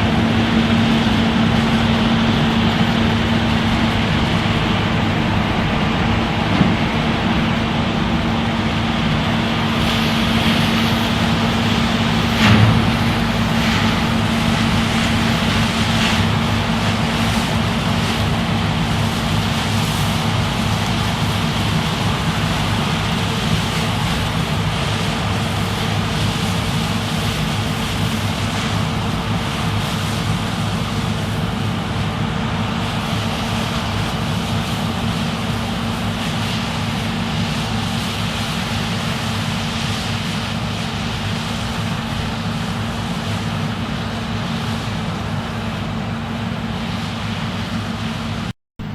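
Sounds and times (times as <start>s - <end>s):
combine harvester drone: 0.0s - 48.9s
brief thump: 12.4s - 15.2s.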